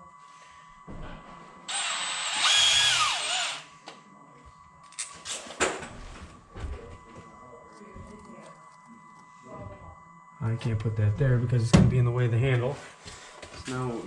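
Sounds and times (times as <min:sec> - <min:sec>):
power drill running: 0:01.7 - 0:03.7.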